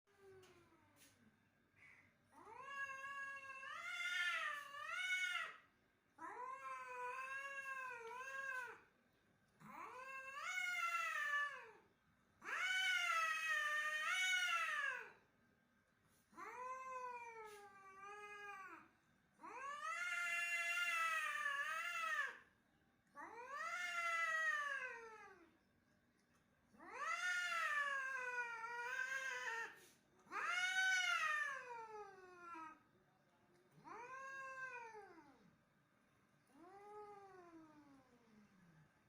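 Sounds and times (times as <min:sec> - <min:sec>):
cat yowling: 0:06.2 - 0:08.8, 0:12.4 - 0:15.2, 0:23.2 - 0:25.5, 0:26.8 - 0:32.8, 0:33.8 - 0:35.4.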